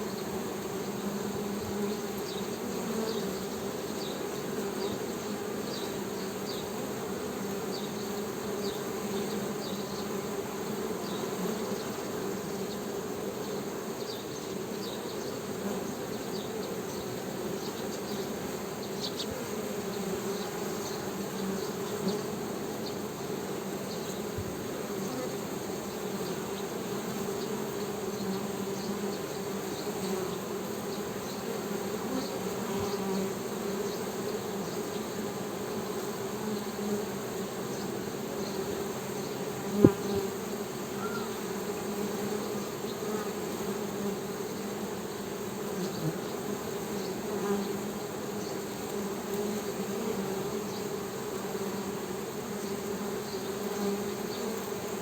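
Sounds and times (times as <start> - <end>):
bees humming: 0.0 - 55.0.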